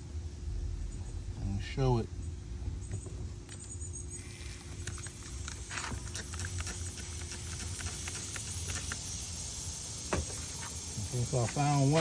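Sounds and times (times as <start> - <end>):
low machine hum: 0.0 - 12.0
faint hiss: 3.6 - 12.0.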